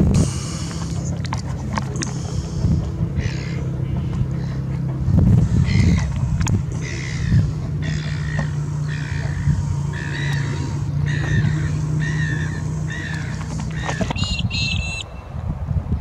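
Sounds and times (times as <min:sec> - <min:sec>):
bird calling: 0:00.0 - 0:15.3
steady low hum: 0:00.0 - 0:16.0
higher bird call: 0:01.9 - 0:04.7, 0:05.4 - 0:15.3.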